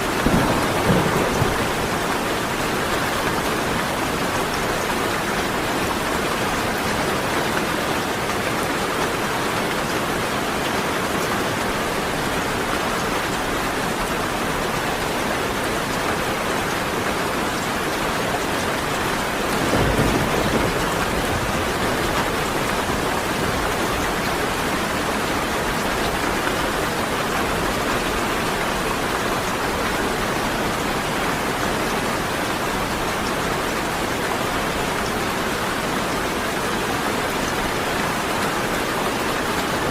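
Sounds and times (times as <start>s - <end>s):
steady rain falling: 0.0s - 39.9s
thunder rumbling: 0.1s - 2.8s, 19.3s - 24.7s.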